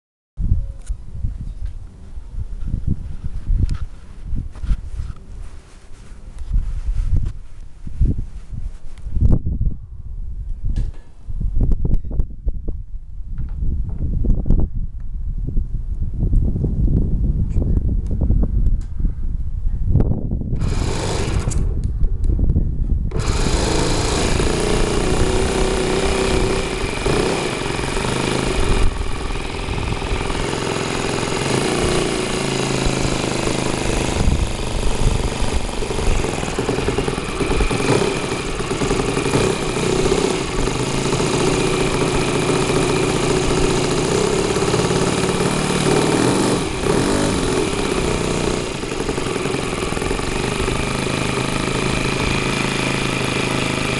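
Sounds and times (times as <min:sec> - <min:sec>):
model airplane engine running: 0:20.6 - 0:21.7, 0:23.1 - 0:53.9.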